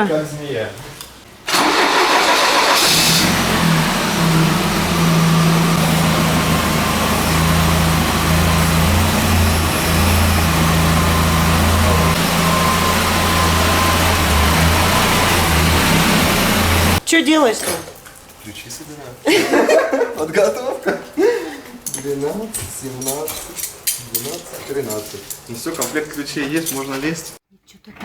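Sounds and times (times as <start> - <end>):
van engine idling: 1.5 - 17.0.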